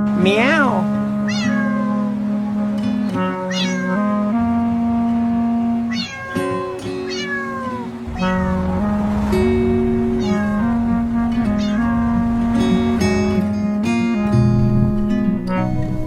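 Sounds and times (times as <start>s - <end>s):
music with held notes: 0.0s - 16.0s
cat meowing: 1.3s - 2.2s, 3.2s - 4.1s, 5.8s - 8.4s, 11.5s - 12.0s.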